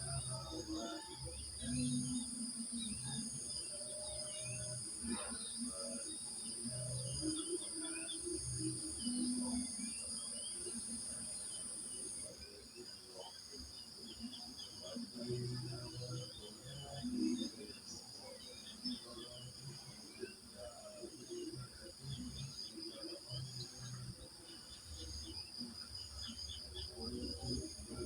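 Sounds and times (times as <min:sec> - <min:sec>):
crickets trilling: 0:00.0 - 0:28.0.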